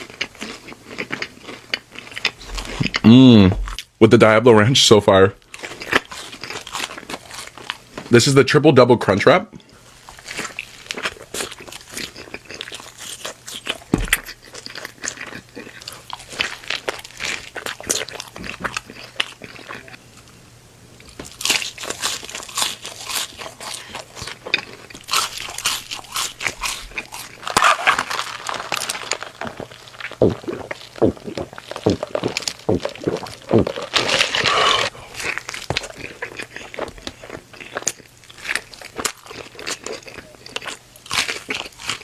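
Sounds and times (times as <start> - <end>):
crunchy chewing: 0.0 - 3.9, 5.4 - 8.1, 9.6 - 20.4, 21.0 - 42.0.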